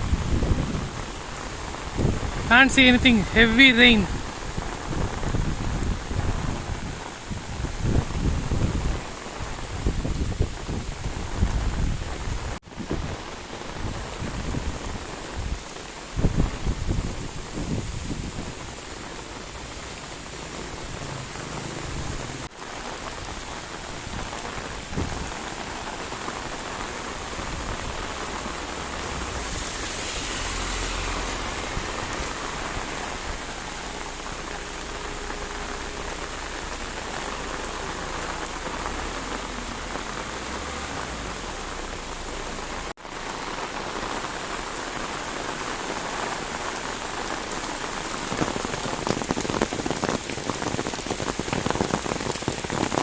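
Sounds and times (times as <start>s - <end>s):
heavy rain falling: 0.0s - 53.0s.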